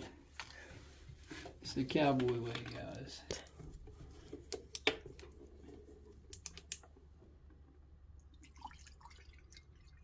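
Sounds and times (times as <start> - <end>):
faint clicks and ticks: 6.2 - 7.7
water dripping: 8.1 - 10.0.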